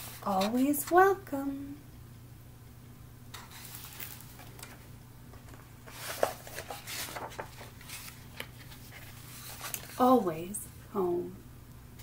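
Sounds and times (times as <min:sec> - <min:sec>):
paper rustling of book page: 0:03.4 - 0:04.8, 0:05.4 - 0:10.2.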